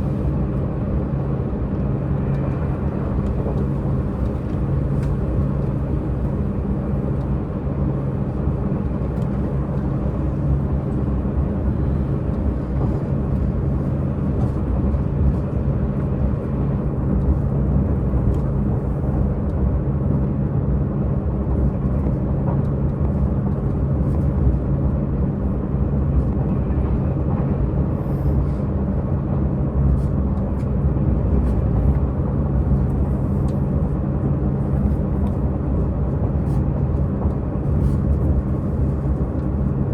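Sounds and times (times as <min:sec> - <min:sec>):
train diesel engine droning: 0:00.0 - 0:19.4
train running noise: 0:00.0 - 0:39.9.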